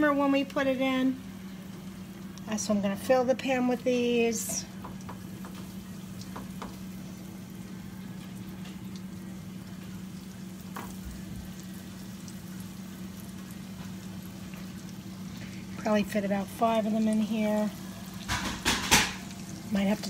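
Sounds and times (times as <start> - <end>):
meat sizzling in frying pan: 3.6 - 20.0.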